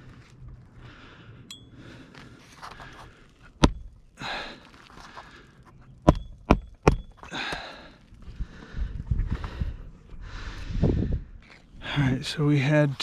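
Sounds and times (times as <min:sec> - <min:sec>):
person breathing heavily: 0:00.7 - 0:03.5, 0:04.1 - 0:05.7, 0:07.2 - 0:12.0
nails striking roof shingles: 0:06.0 - 0:07.7.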